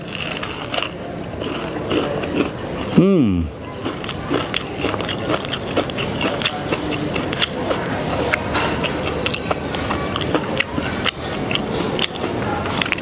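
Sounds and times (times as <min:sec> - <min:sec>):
crispy food being chewed: 0:00.0 - 0:03.0, 0:03.7 - 0:13.0.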